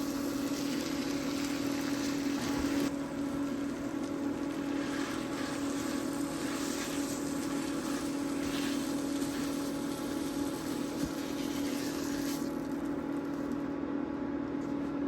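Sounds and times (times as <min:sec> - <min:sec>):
small electric motor humming: 0:00.0 - 0:13.6.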